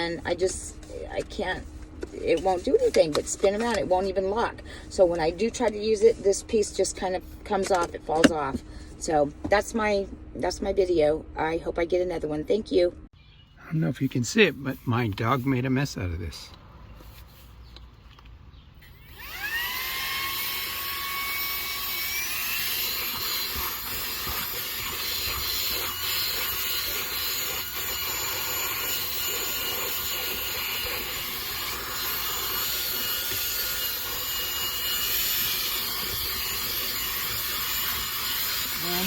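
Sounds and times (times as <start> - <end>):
handheld vacuum motor whine: 18.8 - 39.0.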